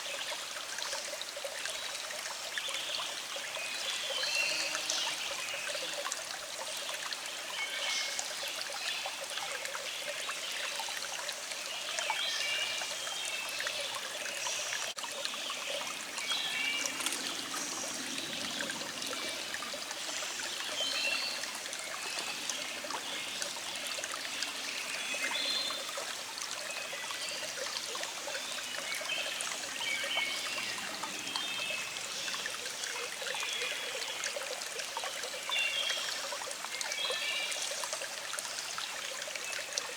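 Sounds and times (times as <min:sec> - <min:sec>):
stream babbling over rocks: 0:00.0 - 0:39.9
songbirds chirping: 0:09.6 - 0:34.2.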